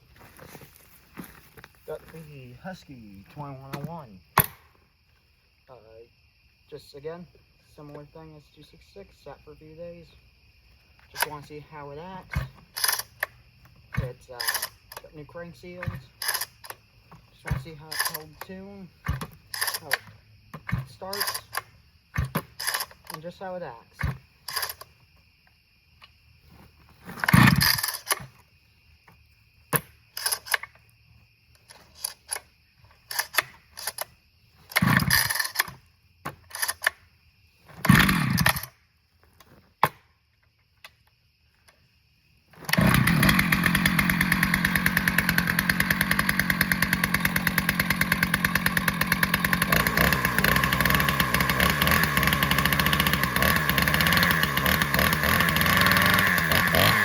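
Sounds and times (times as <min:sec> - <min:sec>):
recoil starter pulls: 0:11.1 - 0:25.0, 0:27.0 - 0:28.4, 0:30.1 - 0:30.7, 0:31.6 - 0:37.0, 0:37.7 - 0:38.7, 0:42.6 - 0:57.0
chainsaw engine running: 0:14.0 - 0:14.8, 0:17.4 - 0:20.1, 0:20.7 - 0:21.6, 0:27.2 - 0:28.3, 0:34.7 - 0:35.6, 0:37.8 - 0:38.7, 0:42.6 - 0:57.0.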